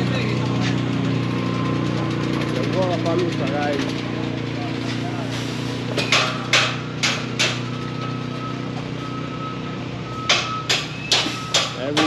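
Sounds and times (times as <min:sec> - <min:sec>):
engine idling hum: 0:00.0 - 0:12.0
hammer blows: 0:05.9 - 0:08.0, 0:10.2 - 0:12.0
reversing alarm beeping: 0:07.7 - 0:12.0.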